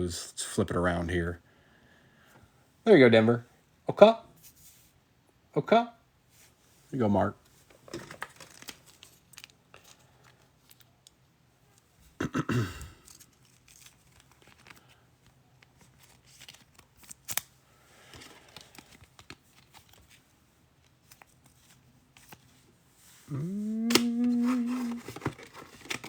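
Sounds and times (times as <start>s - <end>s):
cards and packaging rustling: 7.6s - 11.9s, 12.9s - 26.0s.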